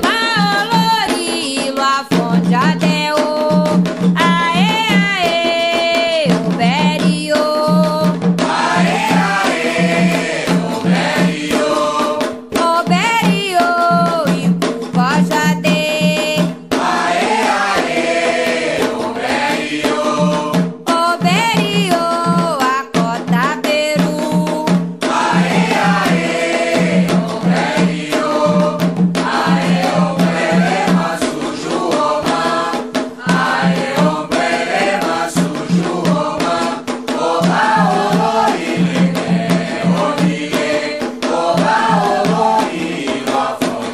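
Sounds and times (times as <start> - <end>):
percussion beat: 0.0 - 43.9
group chanting: 8.4 - 12.4, 16.7 - 20.7, 25.0 - 43.9.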